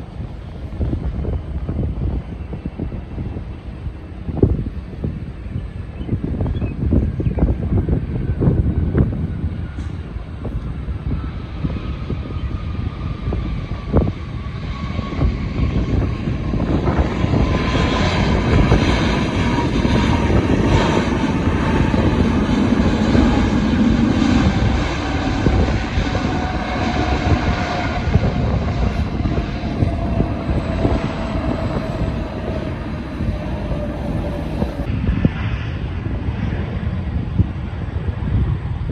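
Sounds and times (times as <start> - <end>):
airliner flying past: 0.0 - 38.9
engine whine falling in pitch: 6.4 - 35.9.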